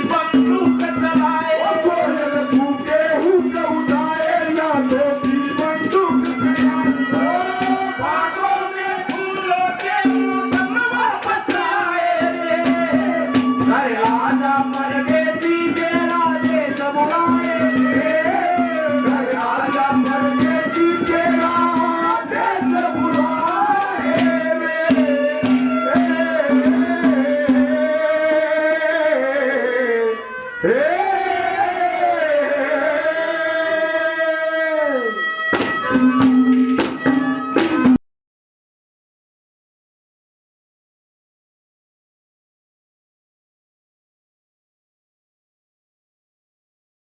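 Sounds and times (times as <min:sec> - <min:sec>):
tabla strokes: 0:00.0 - 0:28.0, 0:35.2 - 0:38.0.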